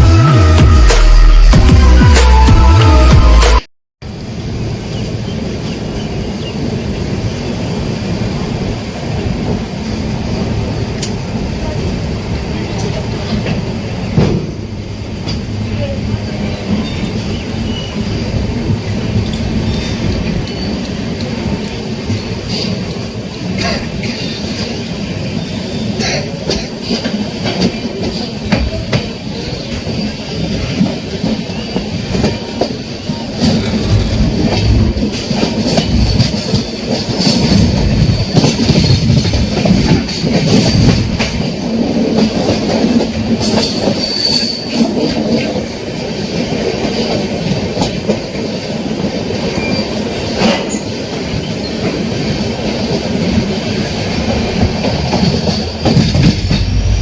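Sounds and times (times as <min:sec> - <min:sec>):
train wheels clattering on rails: 0:04.8 - 0:57.0
high wheel squeal: 0:37.3 - 0:39.0, 0:43.6 - 0:44.8.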